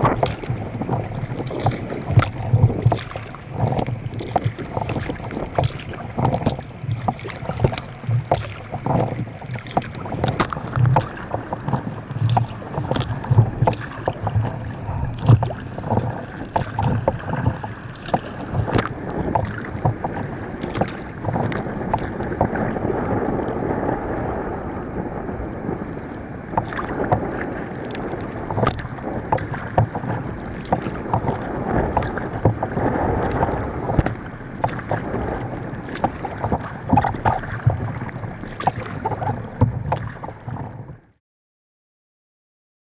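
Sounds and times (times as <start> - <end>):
paddle blades splashing: 0.0 - 41.1
water rushing past boat: 0.0 - 41.2
water slapping against hull: 0.0 - 41.2.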